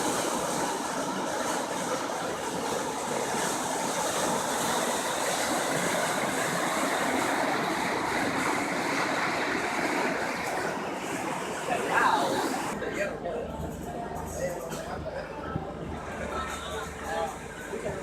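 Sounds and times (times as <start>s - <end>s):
flooded river rushing: 0.0s - 13.2s.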